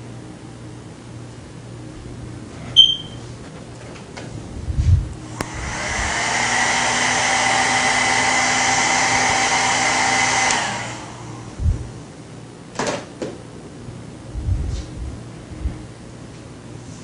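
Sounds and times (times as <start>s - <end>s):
blow dryer running: 4.2s - 12.2s
blow dryer switch click: 10.4s - 10.7s.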